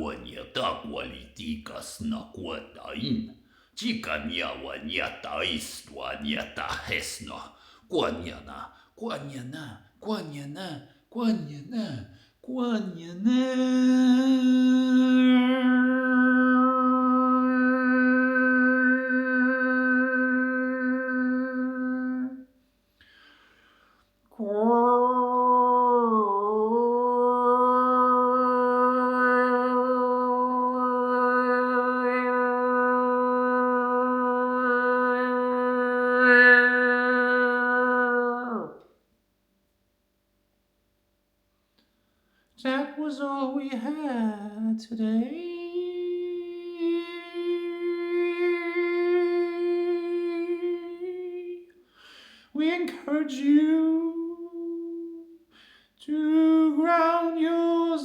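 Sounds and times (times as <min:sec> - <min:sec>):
voice holding long note: 0:13.0 - 0:22.4, 0:24.3 - 0:38.9
person breathing in: 0:23.0 - 0:24.2, 0:51.8 - 0:52.5, 0:55.5 - 0:56.0.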